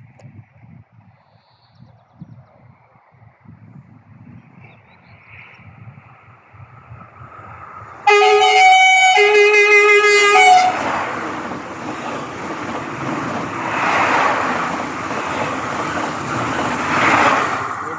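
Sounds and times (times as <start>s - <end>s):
passing train rushing: 5.9s - 17.9s
train horn blast: 8.0s - 10.9s.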